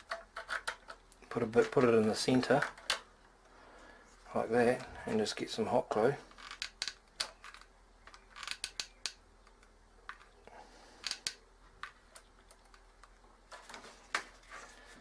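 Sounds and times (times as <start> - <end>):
small sharp clicks and taps: 6.5 - 10.4.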